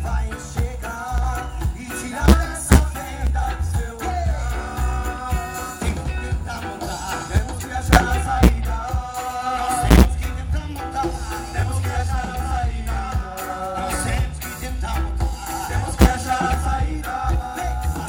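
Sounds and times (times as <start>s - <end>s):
live reggae band playing: 0.0s - 18.0s
sharp drum hits: 2.3s - 3.0s, 7.9s - 8.6s, 9.9s - 10.2s, 16.0s - 16.2s.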